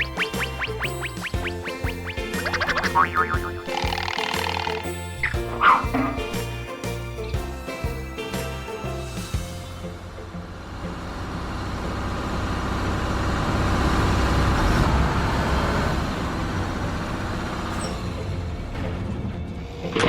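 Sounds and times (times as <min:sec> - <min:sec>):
heavy vehicle rumbling past: 0:09.8 - 0:19.6.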